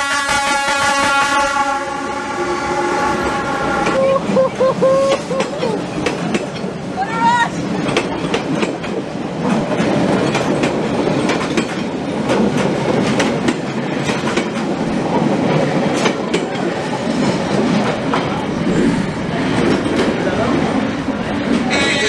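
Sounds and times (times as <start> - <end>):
train carriages rolling past: 0.5 - 22.0
wheels clacking on rails: 3.3 - 22.0.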